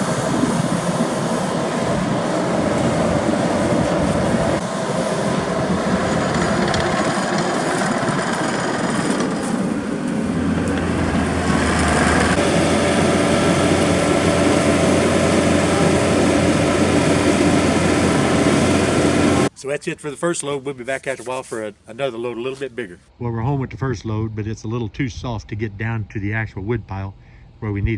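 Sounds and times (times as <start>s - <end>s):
skid steer engine running: 0.0s - 19.5s.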